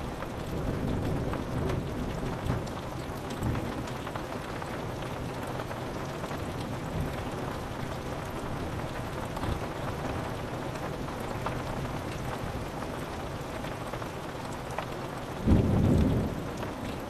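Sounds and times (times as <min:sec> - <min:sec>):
thunder rumbling: 0:00.0 - 0:03.8, 0:15.2 - 0:17.0
rain pattering on window glass: 0:00.0 - 0:17.0.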